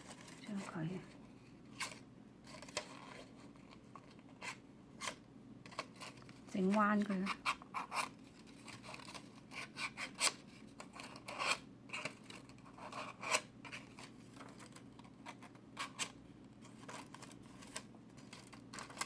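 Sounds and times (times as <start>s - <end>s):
scissor blade scraping paper: 4.4s - 16.2s.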